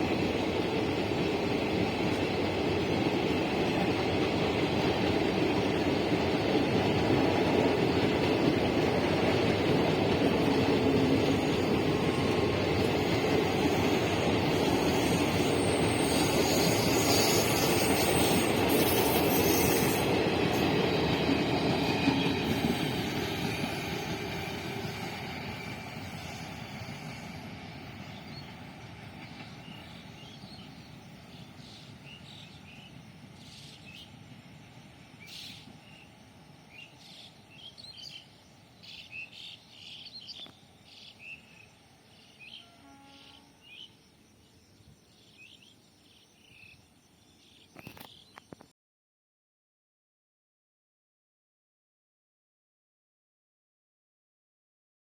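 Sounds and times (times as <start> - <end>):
train wheels rattling on rails: 0.0 - 41.5.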